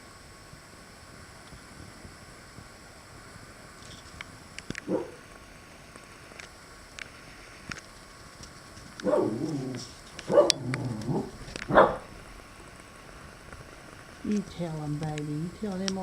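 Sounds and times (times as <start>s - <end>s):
dog barking: 4.8s - 5.2s, 9.0s - 9.6s, 10.3s - 12.1s.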